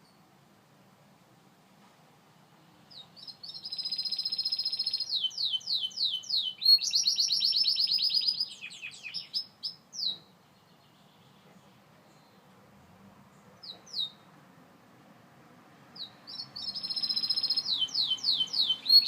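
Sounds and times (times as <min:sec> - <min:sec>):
canary singing trills: 0:02.9 - 0:11.4, 0:13.6 - 0:14.3, 0:16.0 - 0:19.0.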